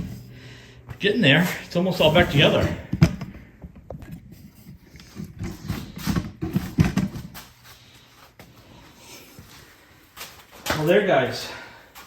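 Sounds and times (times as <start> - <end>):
knocks and clatter of parts: 2.6 - 7.5.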